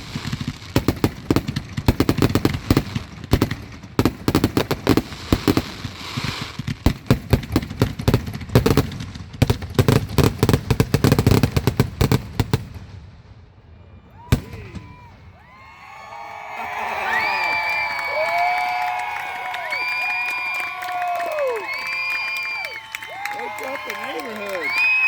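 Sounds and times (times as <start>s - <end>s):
fireworks banging: 14.2s - 15.4s.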